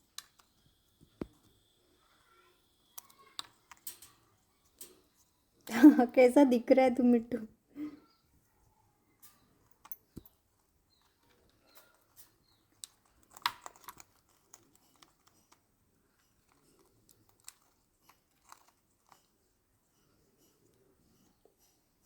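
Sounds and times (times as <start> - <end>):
parrot beak crunching food: 11.3 - 15.6, 16.2 - 19.5.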